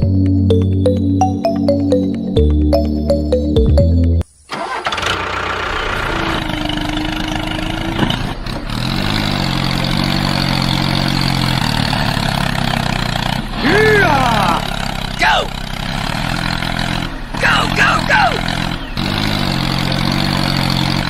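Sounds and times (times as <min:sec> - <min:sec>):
background music: 0:00.0 - 0:04.2
engine running: 0:00.0 - 0:21.0.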